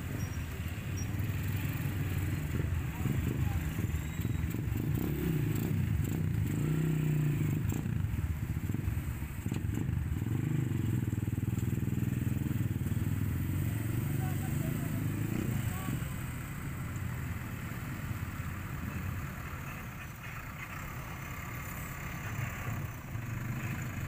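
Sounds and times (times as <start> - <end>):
backhoe loader engine revving: 9.5 - 24.0.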